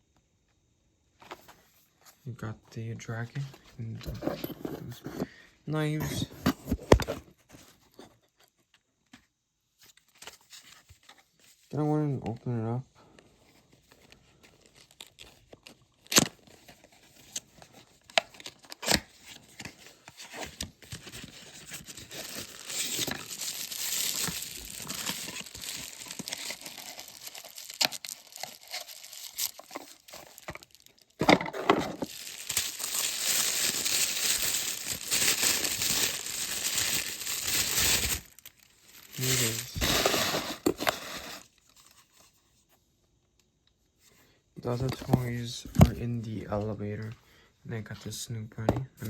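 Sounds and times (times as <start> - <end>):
plastic packaging tearing and crinkling: 14.6 - 42.1.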